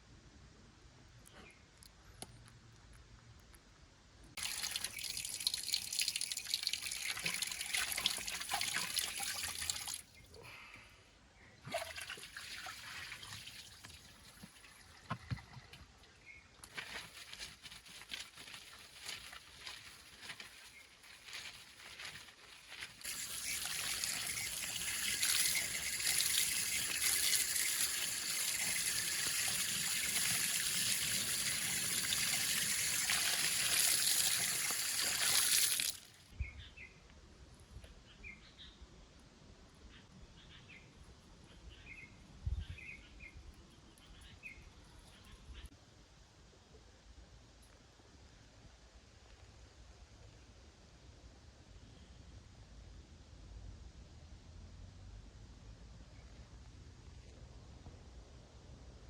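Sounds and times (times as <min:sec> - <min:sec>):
water trickling and splashing: 0:04.4 - 0:10.2, 0:11.7 - 0:36.2.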